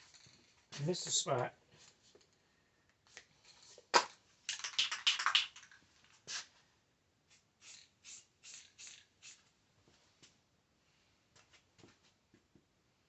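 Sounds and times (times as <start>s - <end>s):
spray paint can hissing: 7.3s - 9.4s.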